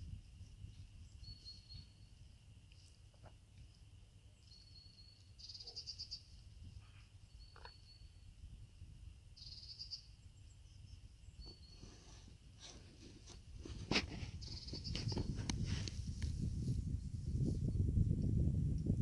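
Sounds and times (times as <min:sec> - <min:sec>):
small birds calling: 0:01.0 - 0:02.1, 0:04.2 - 0:08.3, 0:09.4 - 0:12.3, 0:14.4 - 0:15.5.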